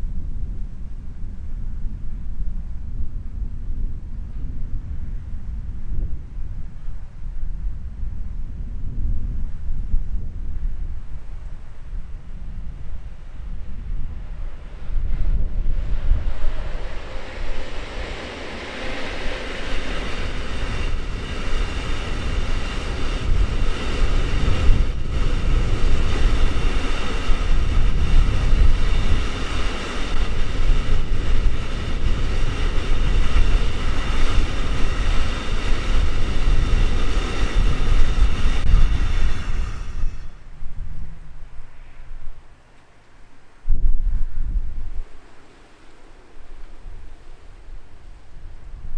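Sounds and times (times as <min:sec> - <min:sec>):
train wheels on rails: 0:13.0 - 0:40.6.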